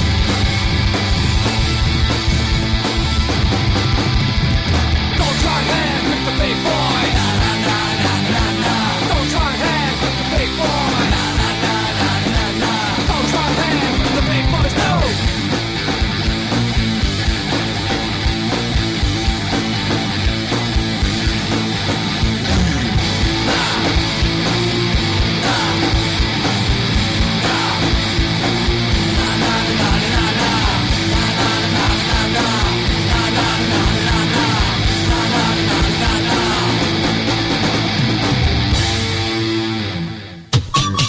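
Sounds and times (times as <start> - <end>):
steady driving beat: 0.0 - 39.9
electric guitar: 0.0 - 40.6
loud rock song: 0.0 - 41.0.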